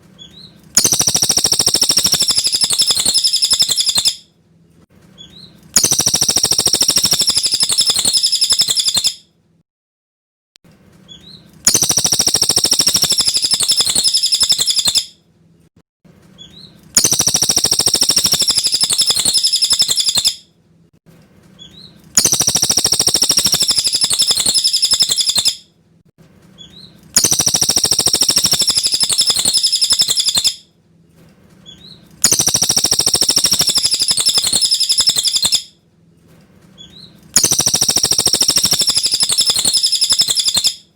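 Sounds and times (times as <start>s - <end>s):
bird twittering song: 0.2s - 4.2s, 5.2s - 9.2s, 11.1s - 15.1s, 16.4s - 20.4s, 21.6s - 25.6s, 26.6s - 30.6s, 31.7s - 35.7s, 36.8s - 40.9s.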